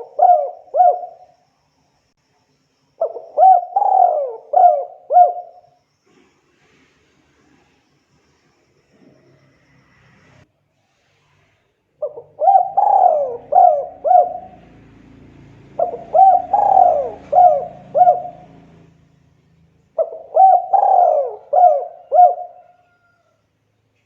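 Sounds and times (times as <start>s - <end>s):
dove cooing: 0.0s - 1.3s, 3.0s - 5.7s, 12.0s - 19.1s, 19.9s - 23.2s.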